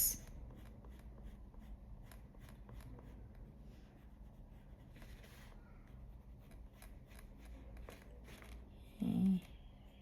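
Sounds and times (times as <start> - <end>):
pencil scratching on paper: 0.0 - 8.8.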